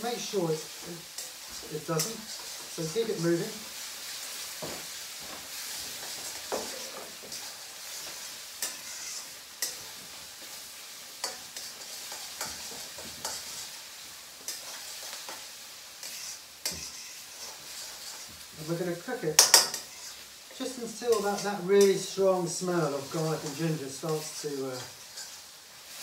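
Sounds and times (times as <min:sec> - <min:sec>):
food sizzling in a wok: 0:00.0 - 0:26.0
spatula scraping a pan: 0:05.5 - 0:18.8, 0:19.4 - 0:22.2, 0:23.0 - 0:26.0.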